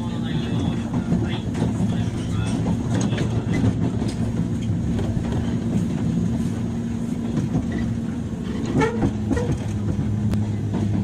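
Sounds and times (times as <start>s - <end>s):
electric train interior hum: 0.0s - 11.0s.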